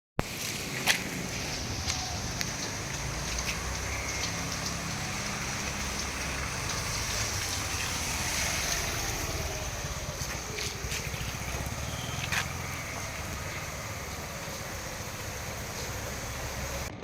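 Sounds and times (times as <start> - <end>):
heavy rain hissing: 0.2 - 16.9
car engine hum: 0.3 - 17.0.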